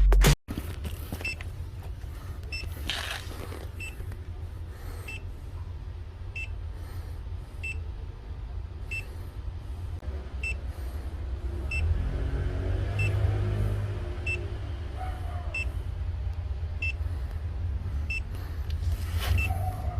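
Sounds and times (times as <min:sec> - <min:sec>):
steady low hum: 0:00.5 - 0:19.9
leak detector beeping: 0:02.4 - 0:04.1, 0:10.4 - 0:10.6, 0:16.8 - 0:17.0, 0:18.1 - 0:18.4, 0:19.3 - 0:19.7.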